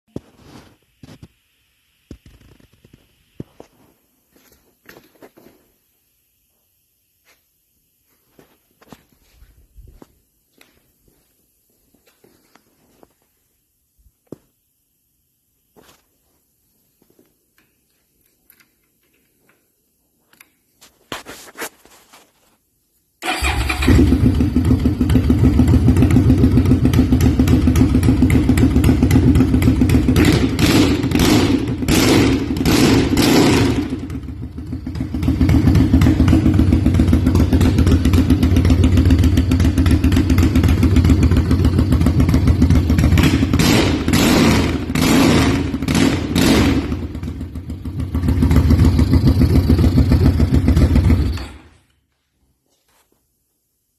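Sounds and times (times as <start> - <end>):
engine starter cranking: 23.2 - 24.3
motorcycle engine running and revving: 23.9 - 51.4.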